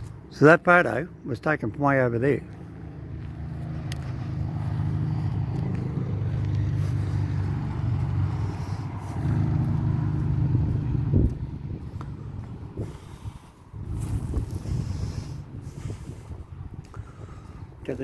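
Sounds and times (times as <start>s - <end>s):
car engine running: 2.5s - 16.4s.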